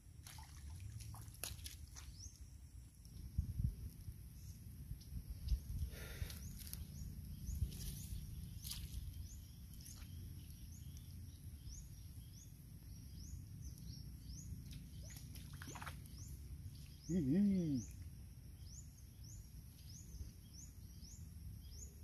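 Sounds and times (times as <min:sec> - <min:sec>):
wind rumble on microphone: 0:03.1 - 0:17.0
bird chirping: 0:04.4 - 0:22.0.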